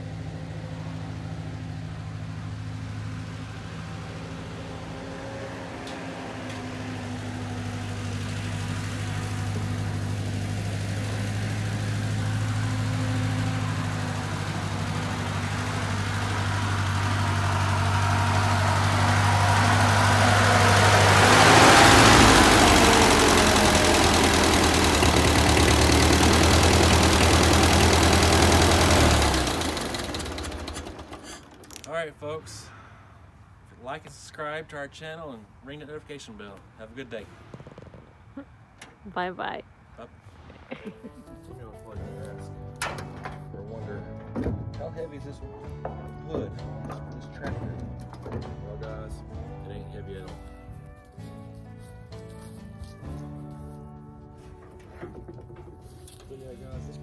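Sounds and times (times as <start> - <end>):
vehicle engine running: 0.0 - 32.4.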